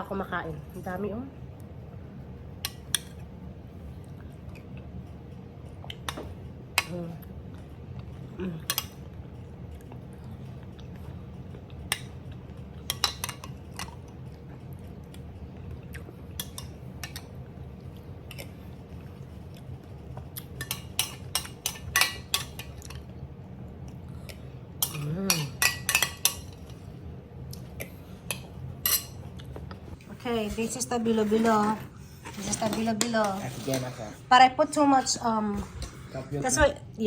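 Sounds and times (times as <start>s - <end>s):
spoon clinking against dishes: 24.8s - 26.6s, 28.3s - 29.2s.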